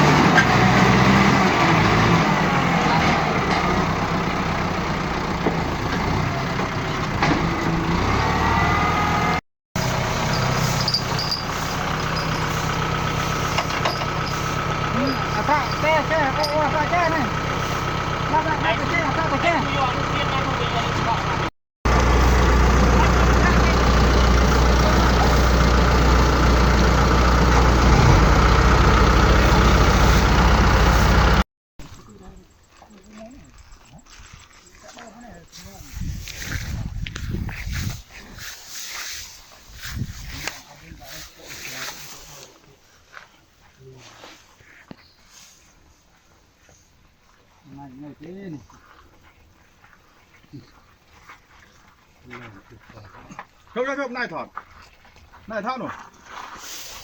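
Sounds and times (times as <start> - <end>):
heavy diesel engine running: 0.0 - 31.5.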